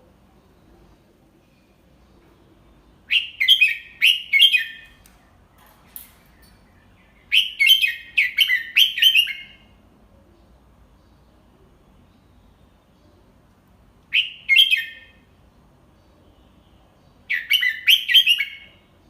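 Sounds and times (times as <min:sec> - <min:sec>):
bird singing clear notes: 0:01.4 - 0:09.8, 0:16.0 - 0:18.9.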